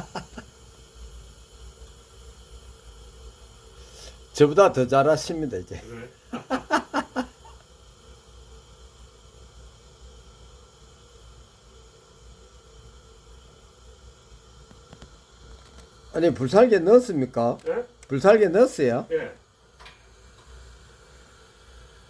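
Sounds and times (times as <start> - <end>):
faint steady hiss: 0.0 - 22.0
man's voice: 16.2 - 19.4.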